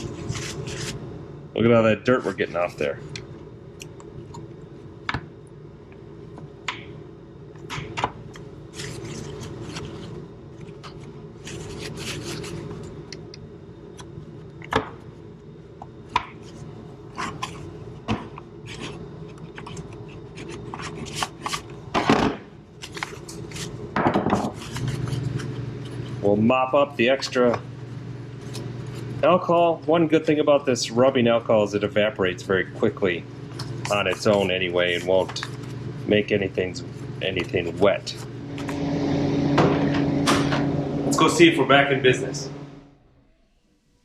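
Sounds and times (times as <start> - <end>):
paper towel scraping contacts: 0.0 - 1.0, 2.1 - 2.9, 8.6 - 12.8, 18.6 - 21.8, 22.8 - 23.8, 24.4 - 27.5, 32.5 - 42.4
steady low hum: 0.0 - 44.0.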